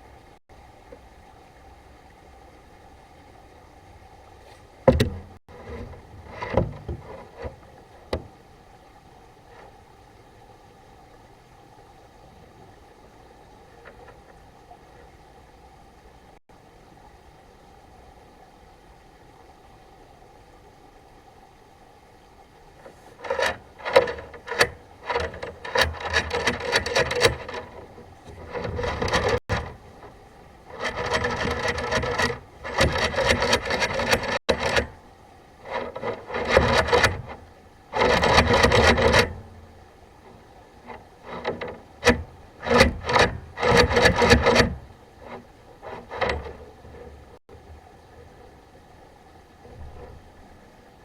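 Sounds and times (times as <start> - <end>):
scraping and rubbing: 4.5 - 7.7, 22.8 - 35.0, 35.6 - 39.7, 40.3 - 47.4.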